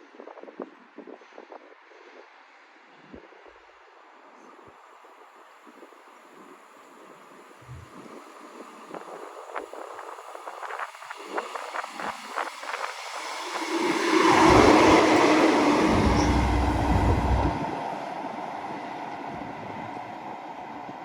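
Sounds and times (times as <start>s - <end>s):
train rushing past: 11.8s - 21.0s
train wheels clicking over rail joints: 13.2s - 17.6s.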